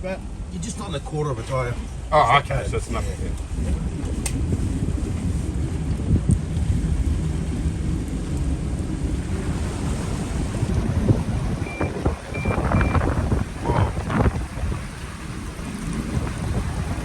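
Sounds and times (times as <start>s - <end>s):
car engine rumble: 0.0s - 17.0s
water washing against car: 0.0s - 17.0s
short high sensor beeps: 11.6s - 13.0s.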